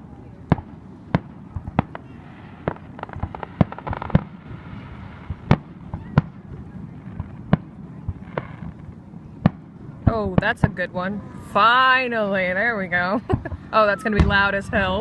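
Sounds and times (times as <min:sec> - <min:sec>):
firework pops and crackle: 0:00.5 - 0:04.4, 0:07.1 - 0:09.6.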